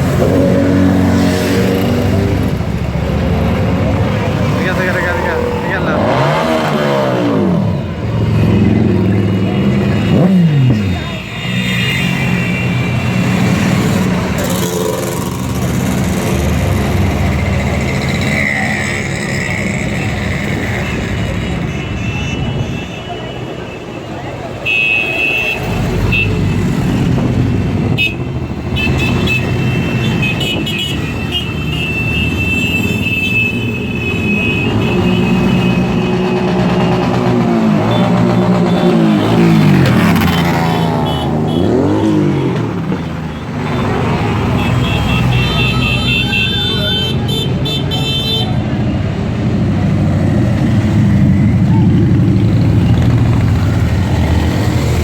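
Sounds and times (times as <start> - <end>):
engine revving: 0.0 - 11.1, 34.6 - 44.8
motorcycle engines running: 0.0 - 21.9, 33.8 - 55.0.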